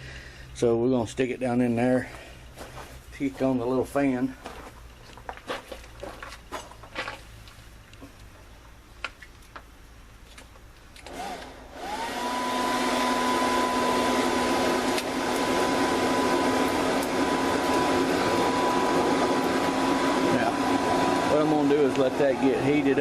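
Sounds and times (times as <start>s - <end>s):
electric fan whirring: 11.0s - 23.0s.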